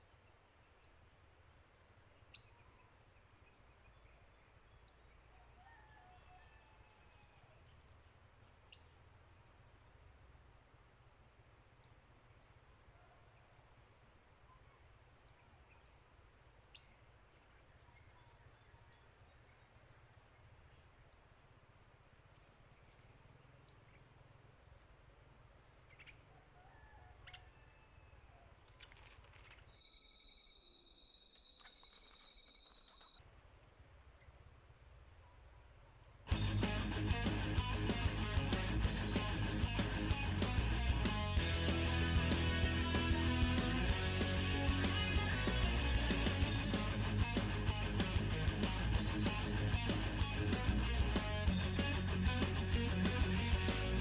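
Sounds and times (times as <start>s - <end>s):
insect trill: 0.0s - 54.0s
faint short chirps and ticks: 53.1s - 54.0s.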